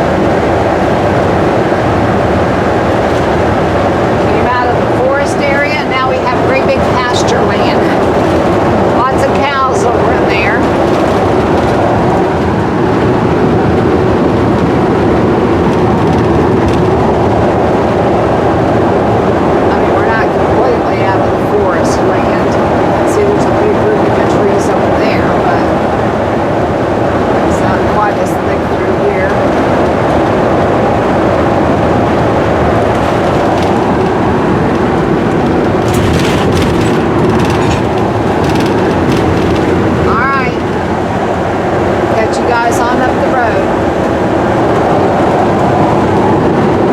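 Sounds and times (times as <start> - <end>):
vehicle engine and road noise: 0.0 - 46.9
faint clicks and rattles: 32.6 - 41.2.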